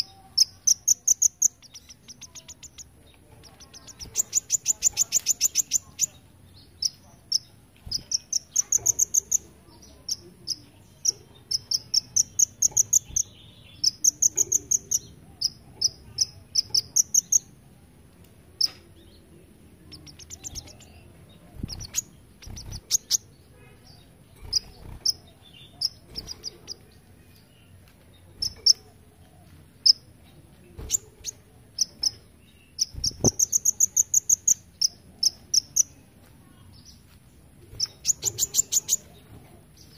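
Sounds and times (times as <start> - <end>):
sunbird singing trilled notes: 0.0 - 17.6.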